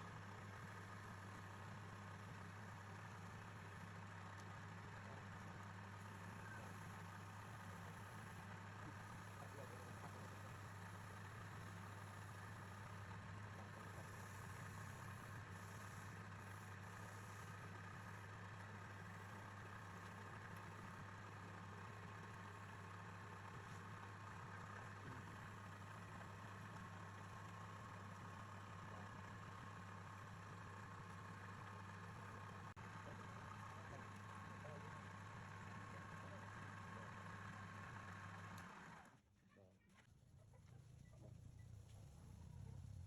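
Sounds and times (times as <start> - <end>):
wood lathe motor humming: 13.6 - 39.1.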